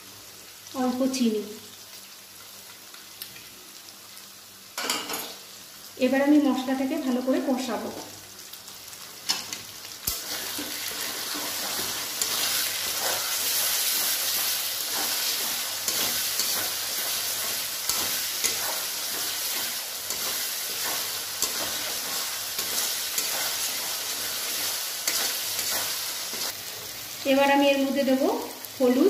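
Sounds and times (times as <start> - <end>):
paste sizzling in oil: 8.2 - 27.2
metal spatula scraping pan: 10.2 - 23.9
spatula tapping metal: 17.4 - 21.9.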